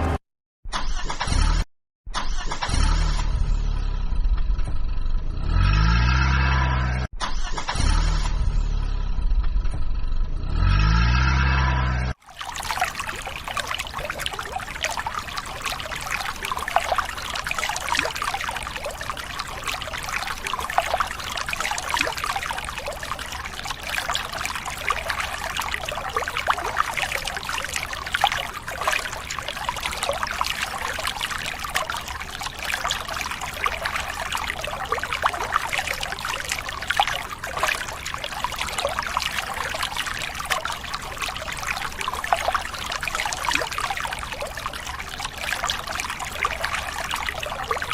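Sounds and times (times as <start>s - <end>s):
water trickling and splashing: 12.1s - 47.9s.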